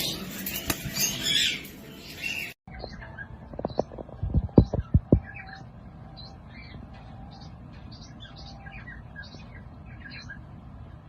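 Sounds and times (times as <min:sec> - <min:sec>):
steady low hum: 0:02.9 - 0:11.0.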